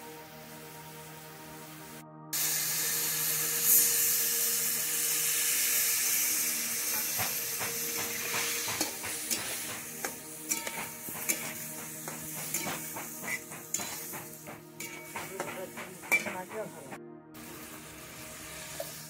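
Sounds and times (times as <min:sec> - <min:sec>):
faint background music: 0:00.0 - 0:19.0
vegetables sizzling in hot oil: 0:02.4 - 0:16.6, 0:17.4 - 0:19.0
metal spatula scraping a wok: 0:08.4 - 0:15.4.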